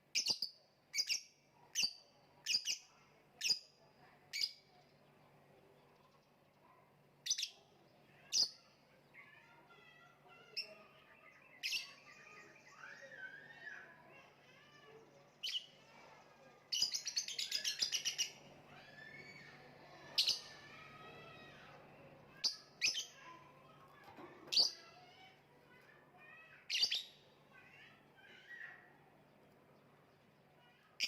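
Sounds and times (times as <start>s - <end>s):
bird chirping: 10.3s - 23.3s.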